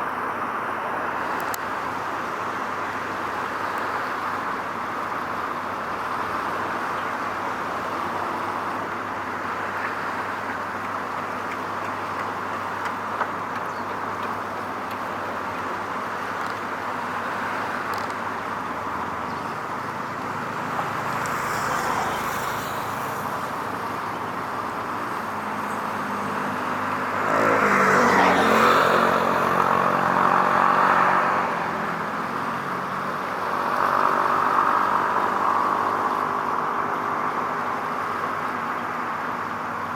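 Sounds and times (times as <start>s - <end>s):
hum of road traffic: 0.0s - 39.9s
vehicle passing by: 19.0s - 23.8s, 24.9s - 38.4s.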